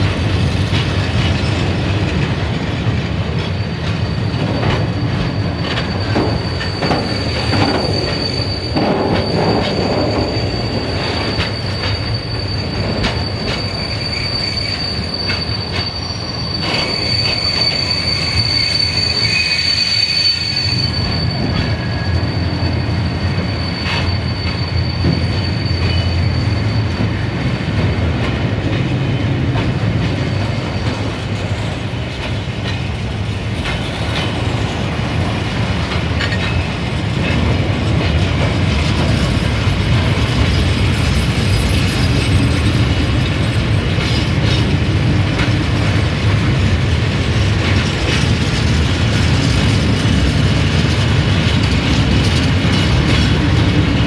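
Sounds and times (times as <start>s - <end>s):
train wheels rumbling on rail: 0.0s - 54.0s
high steady wheel squeal: 2.8s - 54.0s.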